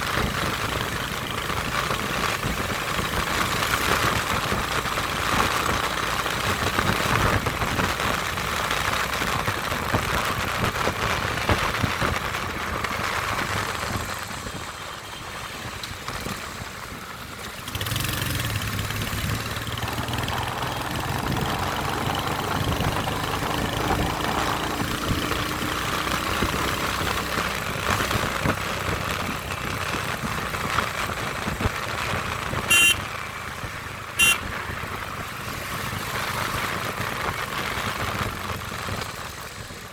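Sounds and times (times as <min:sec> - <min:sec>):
motorcycle engine running: 0:00.0 - 0:39.9
short sharp beeps: 0:32.7 - 0:33.0, 0:34.2 - 0:34.4.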